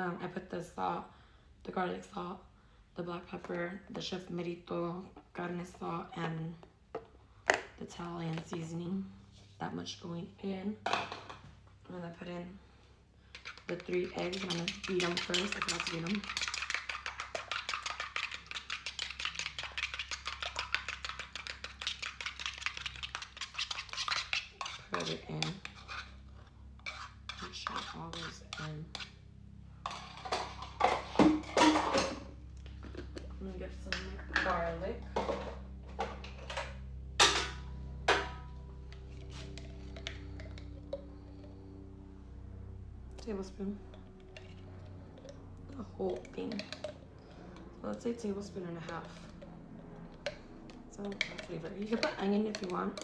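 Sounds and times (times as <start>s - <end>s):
whisk clicking against bowl: 13.4s - 26.0s, 43.9s - 47.7s, 50.1s - 53.0s.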